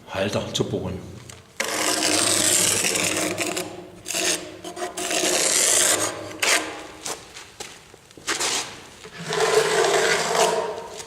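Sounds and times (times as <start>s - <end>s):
marker scraping along boards: 1.6s - 7.3s, 8.3s - 11.0s.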